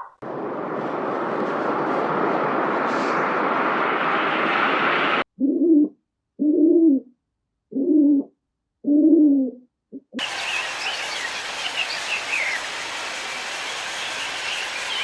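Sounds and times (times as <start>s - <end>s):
hooting bird calls: 10.2s - 15.0s
steady hissing: 10.2s - 15.0s.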